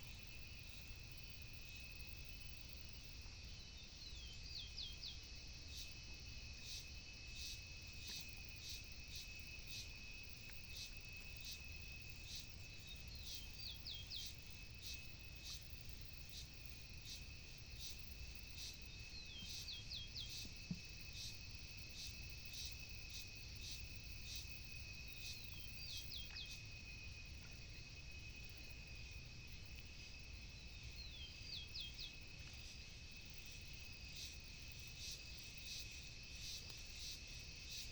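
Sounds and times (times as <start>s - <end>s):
insect whine: 0.0s - 37.9s
bird singing: 3.5s - 5.9s, 12.3s - 15.6s, 18.6s - 21.3s, 25.2s - 26.6s, 30.6s - 32.4s.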